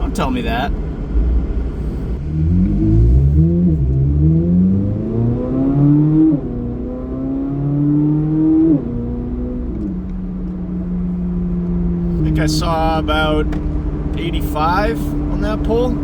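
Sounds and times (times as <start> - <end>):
car engine accelerating through gears: 0.9 - 16.0.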